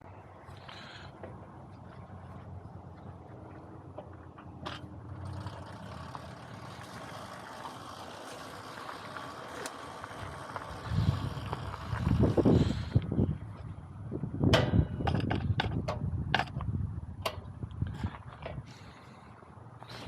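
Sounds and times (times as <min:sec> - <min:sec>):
low rumbling: 0:00.0 - 0:19.8
small engine running: 0:04.8 - 0:13.0.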